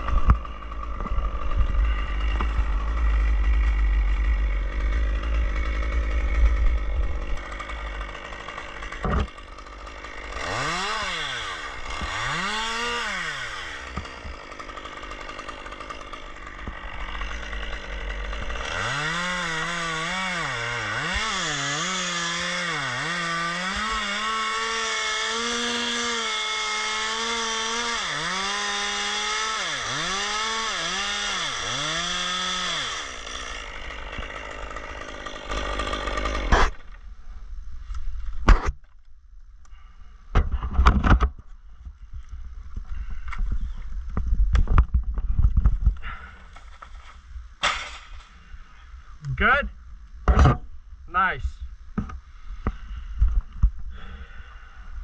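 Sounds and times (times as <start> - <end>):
chainsaw cutting wood: 0.0 - 37.1, 44.6 - 48.4.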